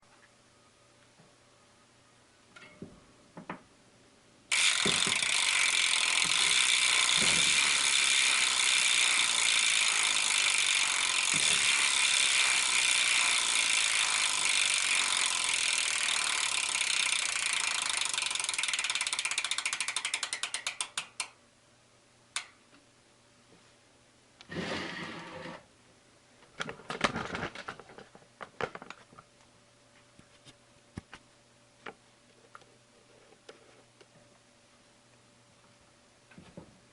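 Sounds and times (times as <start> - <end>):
bicycle hub freewheel clicking: 4.5 - 21.4, 22.4 - 22.6.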